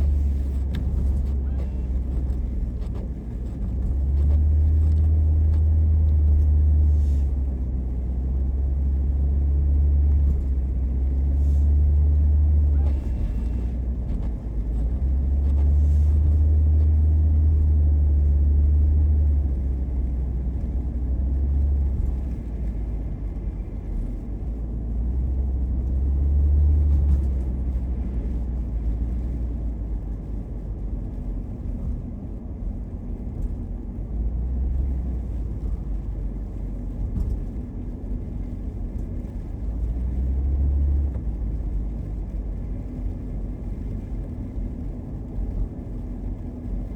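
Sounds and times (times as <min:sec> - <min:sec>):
car engine and road rumble: 0:00.0 - 0:46.9.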